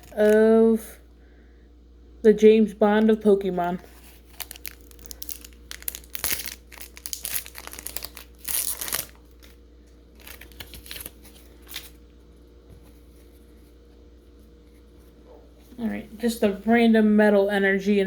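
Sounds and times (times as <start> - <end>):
foil wrapper crinkling and tearing: 0.0 - 0.4, 3.9 - 12.0.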